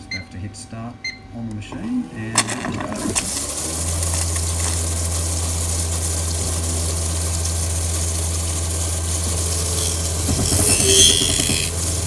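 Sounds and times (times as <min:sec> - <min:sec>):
machine motor hum: 0:01.7 - 0:12.0.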